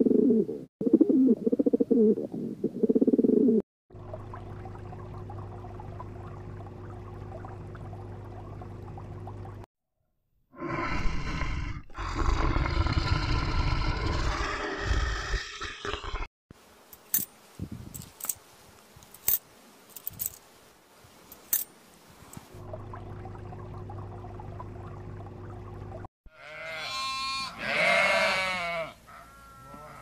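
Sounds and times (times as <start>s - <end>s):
bear growling: 10.6s - 16.3s.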